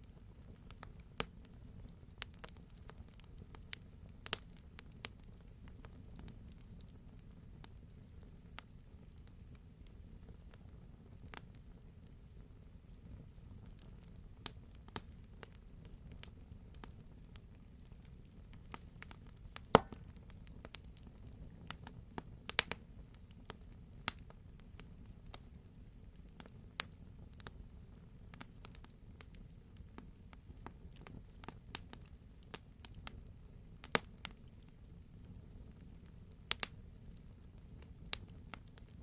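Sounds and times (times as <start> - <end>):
low fire rumble: 0.0 - 39.0
campfire pops and snaps: 0.5 - 6.4, 18.5 - 22.8, 23.4 - 25.6, 26.4 - 27.6, 33.8 - 34.6, 35.9 - 36.8, 37.5 - 39.0.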